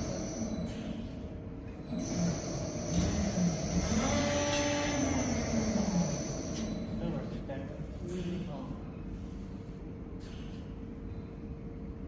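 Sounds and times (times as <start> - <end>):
machine motor humming: 0.0 - 0.9, 1.7 - 7.2.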